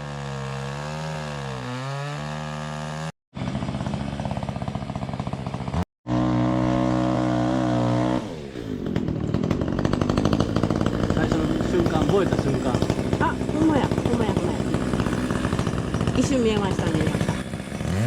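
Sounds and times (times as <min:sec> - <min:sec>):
engine running: 0:01.8 - 0:18.0.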